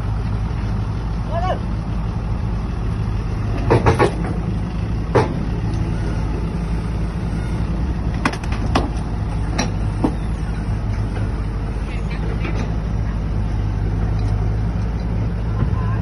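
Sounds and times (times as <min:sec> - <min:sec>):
diesel engine running: 0:00.0 - 0:16.0
sharp metal knocks and clanks: 0:03.6 - 0:04.5, 0:05.1 - 0:05.5, 0:08.2 - 0:10.2.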